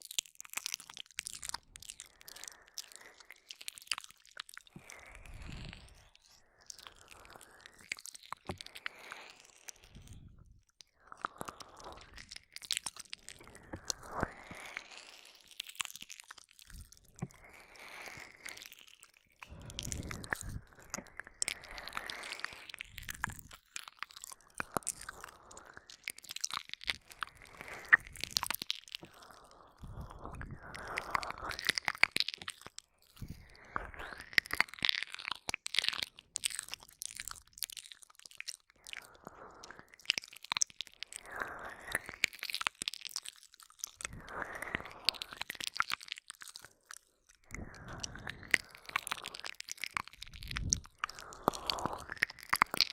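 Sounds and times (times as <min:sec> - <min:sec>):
wet mouth clicks and smacks: 0:00.0 - 0:52.9
breathy noise: 0:16.6 - 0:34.3, 0:43.9 - 0:52.9.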